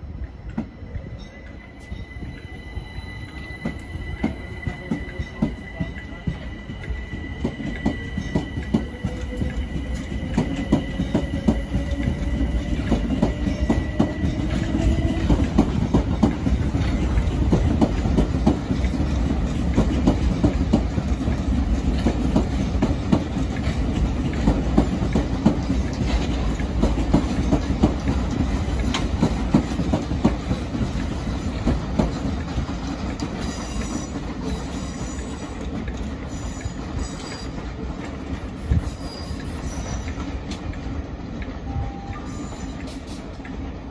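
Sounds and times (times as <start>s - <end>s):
train low rumble: 0.0s - 43.9s.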